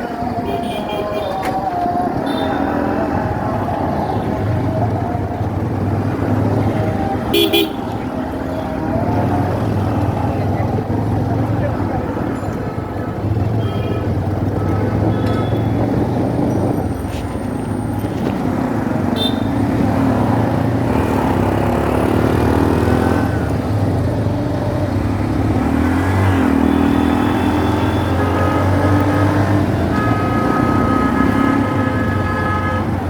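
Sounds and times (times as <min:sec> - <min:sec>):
motorcycle engine accelerating: 0:18.4 - 0:31.8.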